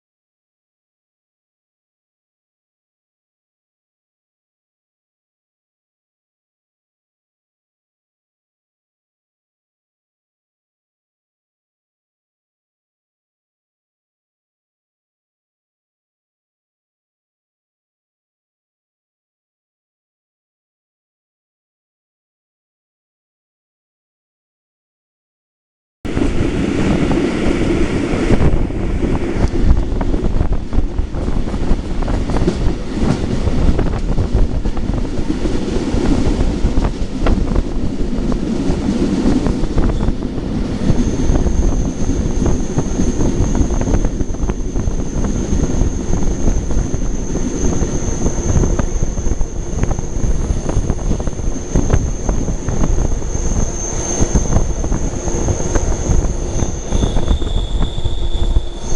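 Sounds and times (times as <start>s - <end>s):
train rumbling on rails: 26.1s - 58.9s
high wheel squeal: 40.8s - 58.9s.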